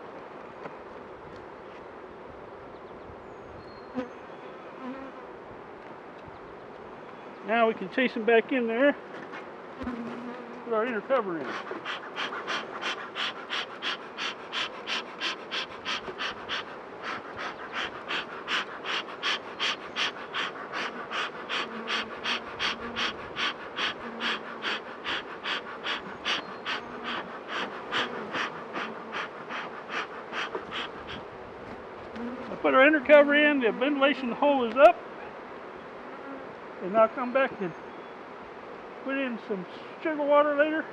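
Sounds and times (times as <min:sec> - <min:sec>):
bees humming: 0:09.8 - 0:31.4
bee smoker bellows puffing: 0:09.8 - 0:32.9.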